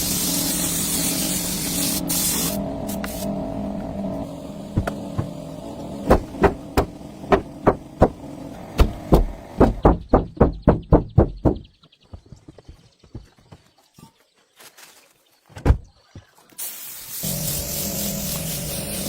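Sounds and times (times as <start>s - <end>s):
engine knocks and pops: 4.7s - 11.7s.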